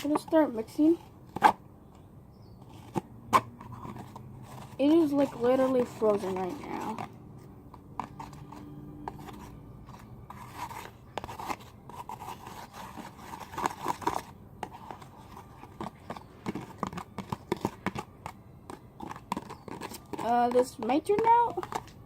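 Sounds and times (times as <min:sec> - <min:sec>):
utensil scraping frozen slime: 0:03.7 - 0:07.2, 0:08.0 - 0:21.9.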